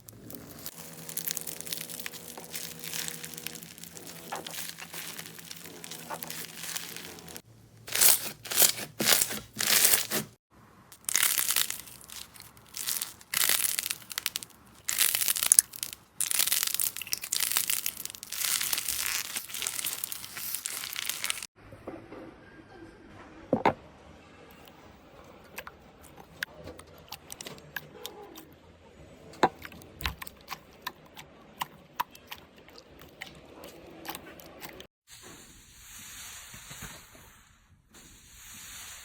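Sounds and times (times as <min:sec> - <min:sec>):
slime squeezed crackling: 0:00.0 - 0:10.4, 0:11.0 - 0:21.5.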